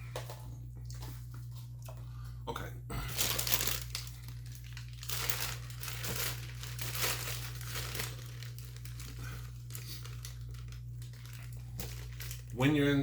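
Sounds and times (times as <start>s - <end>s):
food packaging crinkling: 3.1s - 13.0s.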